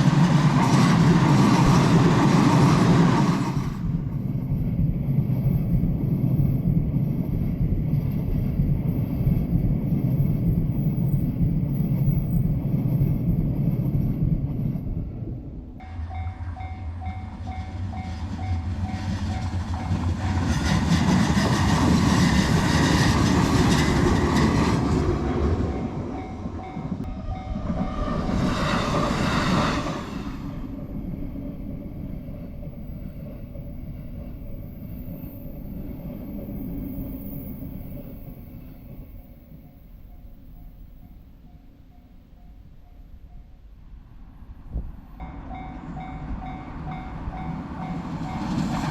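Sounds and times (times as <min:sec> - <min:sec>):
train wheel and rail noise: 0:00.0 - 0:48.9
crossing warning bell ringing: 0:15.8 - 0:20.0, 0:25.3 - 0:28.1.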